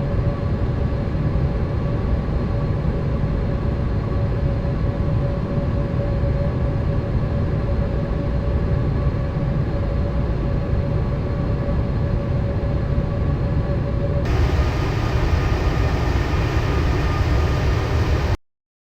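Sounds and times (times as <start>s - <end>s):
airplane engine and airflow roar: 10.2s - 18.4s
constant cabin hum: 14.3s - 18.4s.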